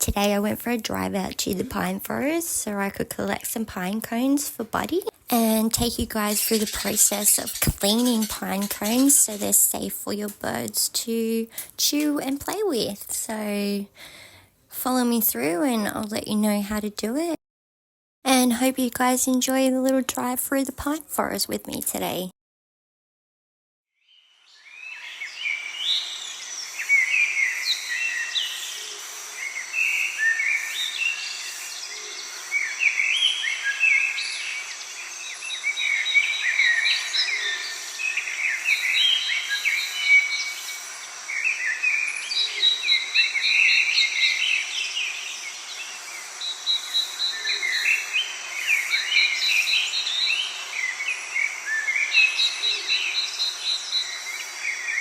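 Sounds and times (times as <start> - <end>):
high rapid bird trill: 5.4 - 9.7
birds singing and chirping: 5.5 - 10.6, 24.5 - 55.0.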